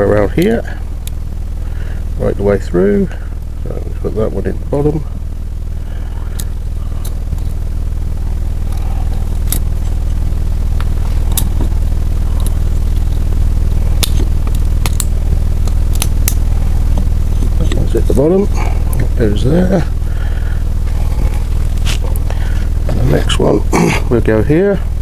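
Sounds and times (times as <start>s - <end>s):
machine humming: 0.0s - 25.0s.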